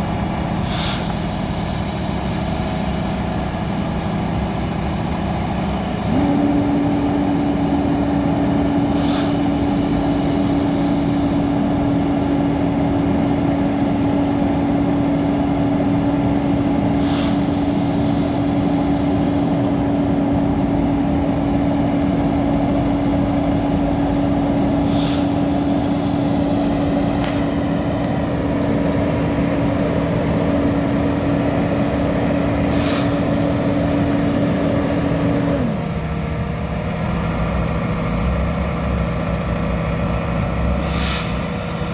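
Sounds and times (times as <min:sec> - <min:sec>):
diesel truck engine running: 0:00.0 - 0:41.9
short sharp hiss: 0:00.6 - 0:03.0, 0:40.8 - 0:41.9.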